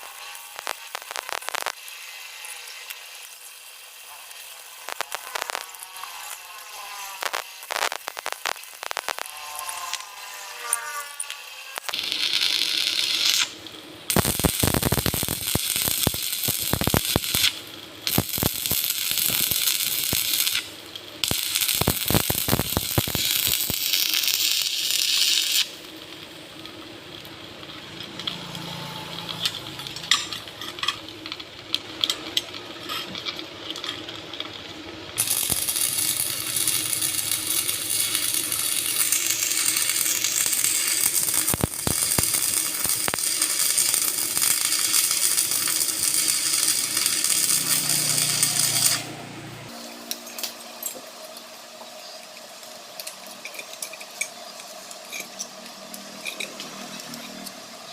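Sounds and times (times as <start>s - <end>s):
loud steady hiss: 0.0s - 6.5s, 7.2s - 9.3s, 11.7s - 27.1s, 35.2s - 50.0s.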